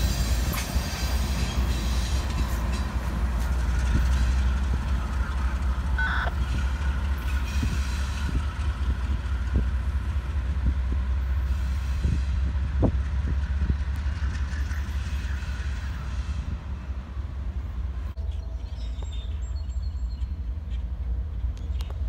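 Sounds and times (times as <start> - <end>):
wheels clacking over rail joints: 0.0 - 16.9
train cars rumbling past: 0.0 - 22.0.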